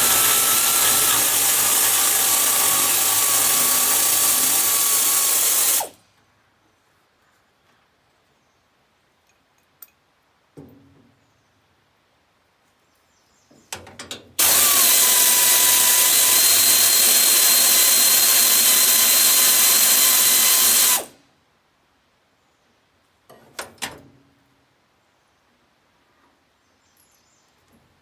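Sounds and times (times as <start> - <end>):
power tool running: 0.0 - 6.0, 14.4 - 21.2.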